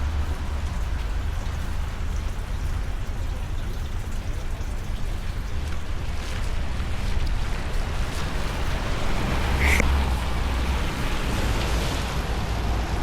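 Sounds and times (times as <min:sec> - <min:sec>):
drops ticking: 0:00.0 - 0:09.9
steady rain: 0:00.0 - 0:13.0.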